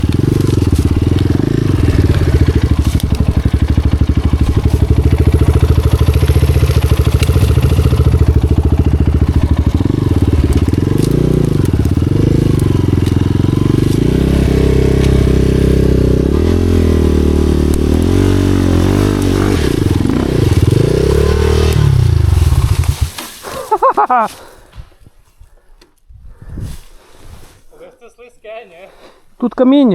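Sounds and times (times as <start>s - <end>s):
dirt bike engine revving: 0.0s - 23.2s.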